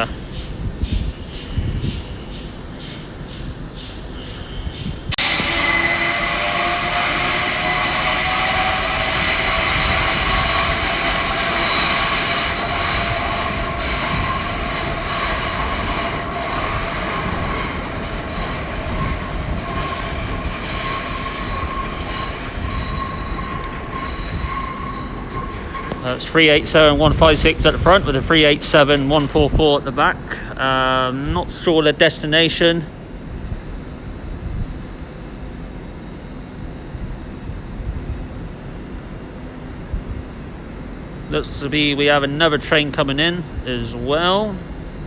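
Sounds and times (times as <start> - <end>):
train wheel squeal: 0.0 - 26.8
train running noise: 0.0 - 33.3.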